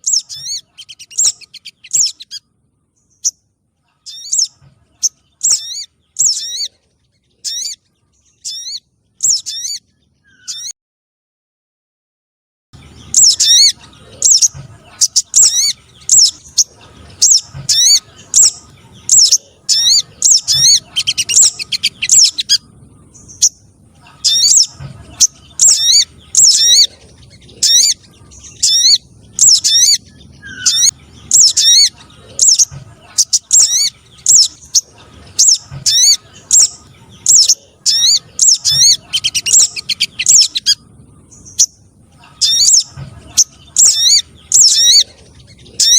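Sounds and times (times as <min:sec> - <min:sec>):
high-pitched bird calls: 0:00.0 - 0:10.8, 0:12.8 - 0:45.9.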